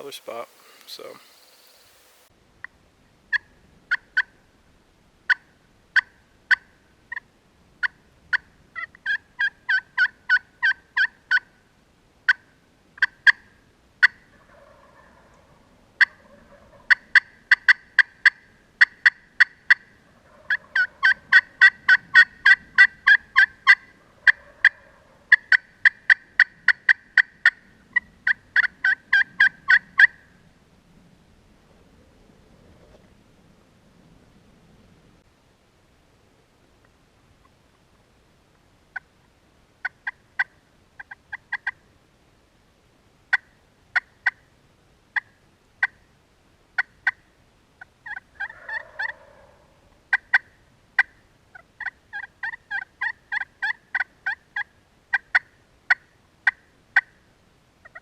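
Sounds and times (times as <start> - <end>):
turkey clucking: 0.0 - 2.3, 14.0 - 17.7, 18.8 - 27.6, 28.6 - 30.2, 48.0 - 57.1.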